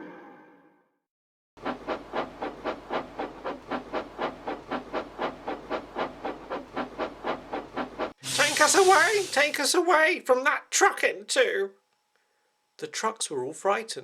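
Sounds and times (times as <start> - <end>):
steam locomotive chuffing: 1.6 - 9.6.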